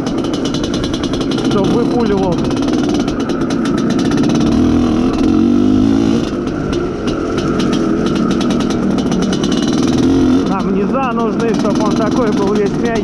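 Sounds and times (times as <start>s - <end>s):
two-stroke motorcycle engine running: 0.0s - 13.0s.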